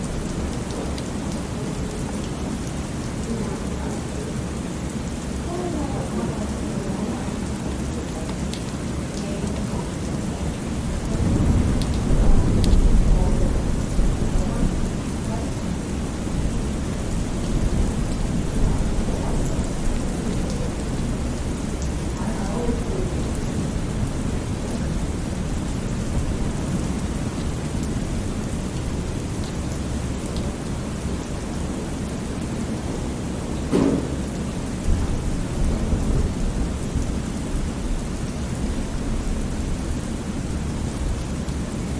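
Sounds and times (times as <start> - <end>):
steady rain: 0.0 - 41.9
low roll of thunder: 10.5 - 29.0, 33.9 - 37.7.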